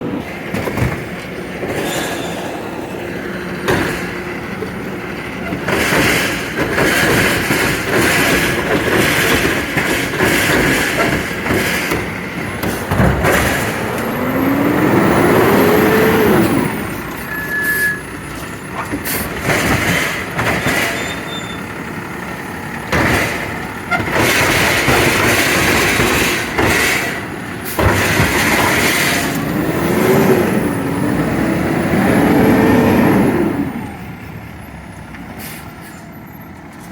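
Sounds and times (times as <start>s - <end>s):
garbage truck engine running: 0.0s - 36.9s
knocks and clanks: 0.2s - 2.8s, 3.4s - 14.5s, 18.3s - 21.8s, 22.7s - 30.0s.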